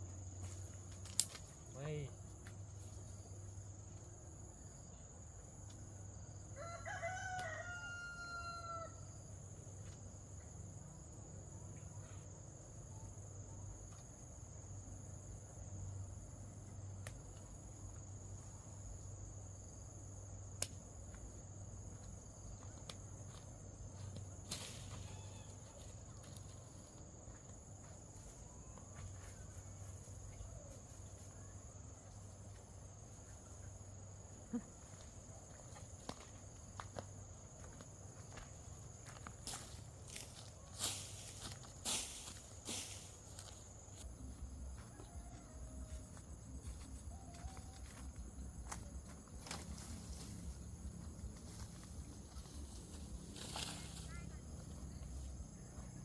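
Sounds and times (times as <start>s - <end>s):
high insect drone: 0.0s - 56.0s
rooster crowing: 6.4s - 9.2s, 25.0s - 25.6s, 44.7s - 46.4s.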